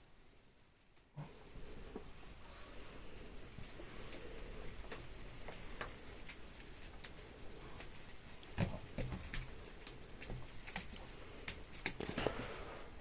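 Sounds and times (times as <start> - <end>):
dog claws clicking on hard floor: 7.8 - 12.3.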